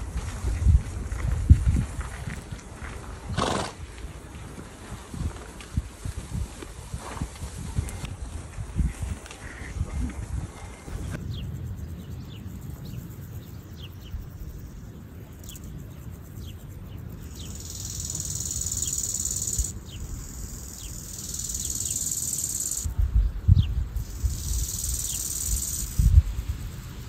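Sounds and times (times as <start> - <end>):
low wind rumble: 0.0 - 27.0
insects chirring: 10.9 - 27.0.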